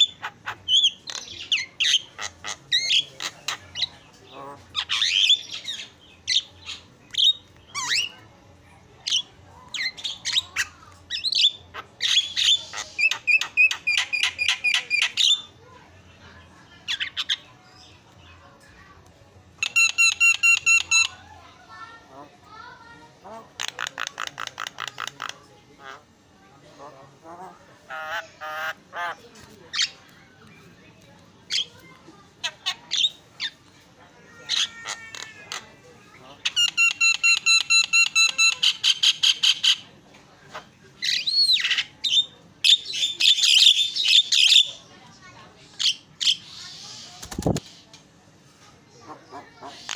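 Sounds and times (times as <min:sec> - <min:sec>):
myna bird harsh squawking calls: 0:34.3 - 0:35.6.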